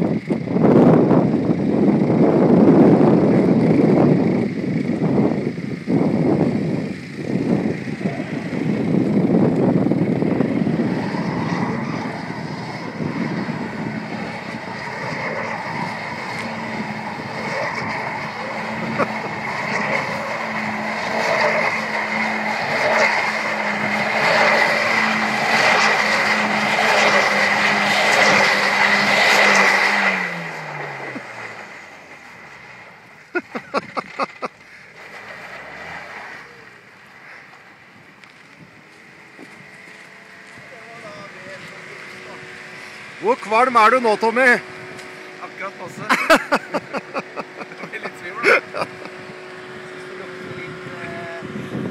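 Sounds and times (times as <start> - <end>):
car engine at high revs: 0.0 - 51.9
rushing noise of sliding car: 0.0 - 51.9.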